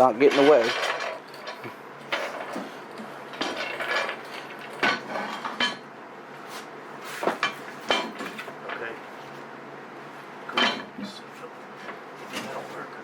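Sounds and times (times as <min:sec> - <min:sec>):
metal parts clanking: 0:00.2 - 0:02.7, 0:03.3 - 0:05.8.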